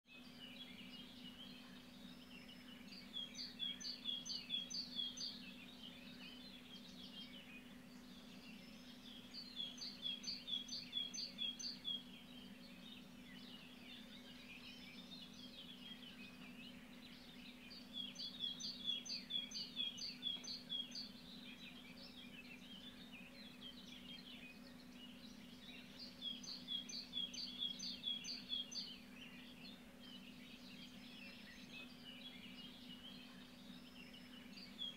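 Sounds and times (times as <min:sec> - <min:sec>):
birds chirping: 0:00.1 - 0:34.9
low steady hum: 0:00.1 - 0:34.9
songbird singing phrase: 0:00.1 - 0:34.9.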